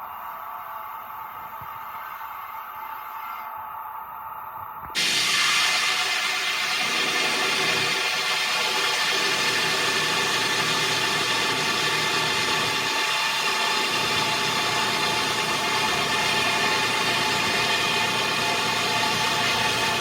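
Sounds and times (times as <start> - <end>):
constant mechanical hum: 0.0 - 20.0
heavy machinery running: 5.0 - 20.0.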